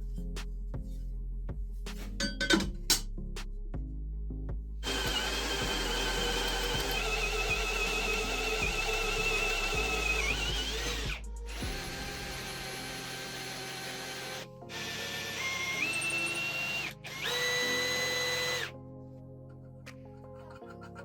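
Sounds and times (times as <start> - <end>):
background music: 0.0 - 21.0
power drill motor whining: 4.8 - 18.7.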